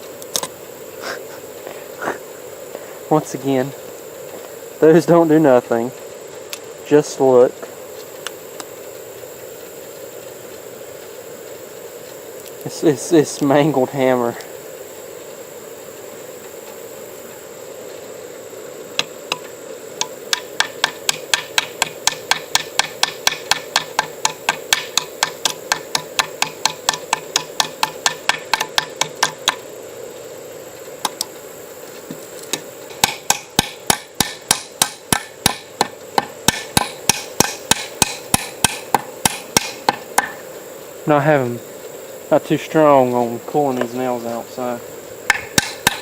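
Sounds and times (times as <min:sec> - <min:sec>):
hammer tapping nails into wood: 0:19.3 - 0:29.6, 0:32.5 - 0:40.4, 0:45.3 - 0:46.0.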